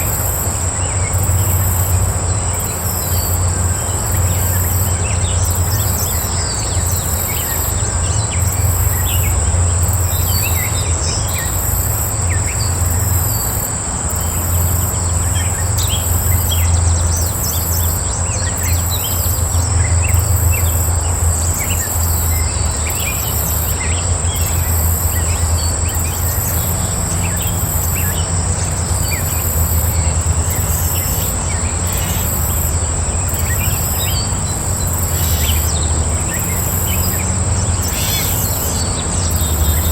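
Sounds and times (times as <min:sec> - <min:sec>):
high insect drone: 0:00.0 - 0:39.9
pulsing insect buzz: 0:00.0 - 0:39.9
small birds chirping: 0:00.0 - 0:39.9.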